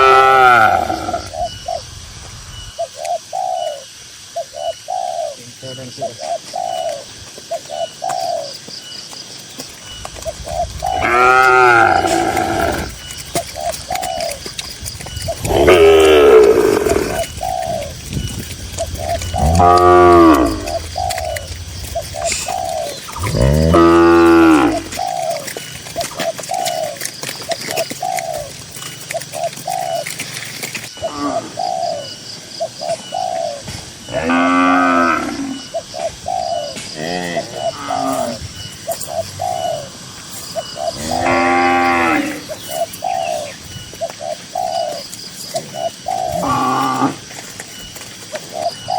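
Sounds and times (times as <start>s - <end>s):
doves cooing: 0.0s - 48.9s
cow mooing: 10.4s - 14.3s, 15.4s - 17.3s, 19.0s - 25.0s, 34.1s - 35.6s, 41.0s - 42.4s.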